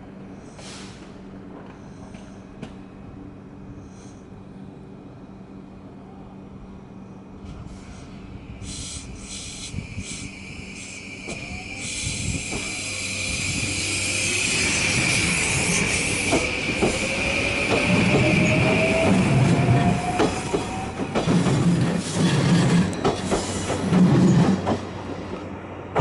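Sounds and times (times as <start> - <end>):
wheel and rail noise: 7.4 - 26.0
train traction motor whine: 8.3 - 24.5.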